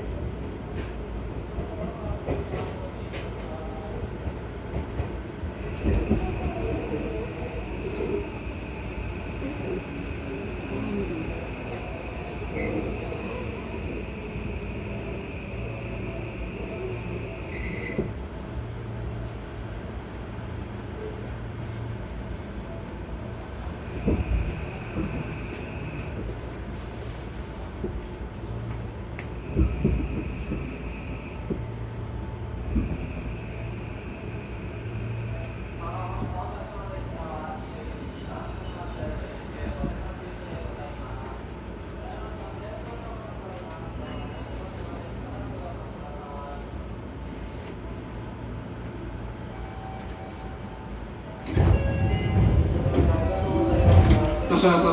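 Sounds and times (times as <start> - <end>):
train rumbling: 0.0 - 54.9.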